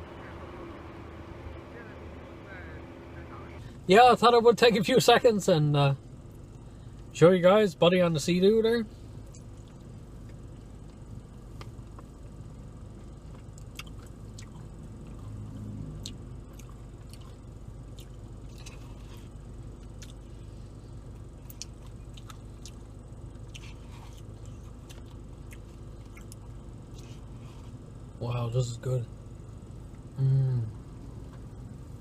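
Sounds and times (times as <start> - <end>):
steady low hum: 0.0 - 32.0
man chewing food: 9.2 - 28.0.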